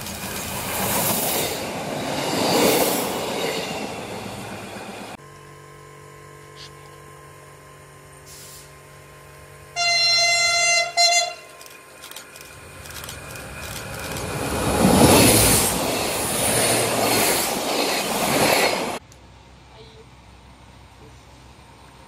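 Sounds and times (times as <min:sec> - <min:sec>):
diesel train running past: 0:00.0 - 0:06.3, 0:07.3 - 0:22.0
train horn: 0:09.8 - 0:11.6.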